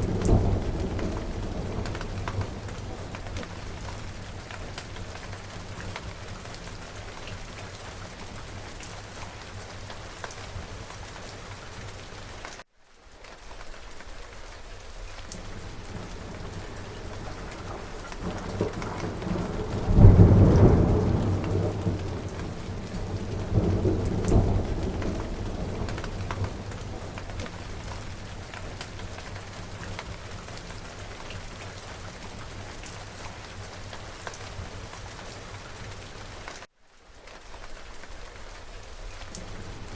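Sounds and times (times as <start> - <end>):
rolling thunder: 0.0 - 6.2, 15.5 - 30.2
steady rain falling: 0.0 - 39.9.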